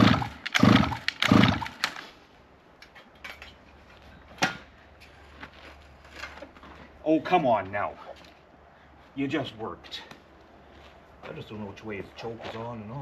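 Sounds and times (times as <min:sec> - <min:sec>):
engine being cranked by hand: 0:00.0 - 0:02.0.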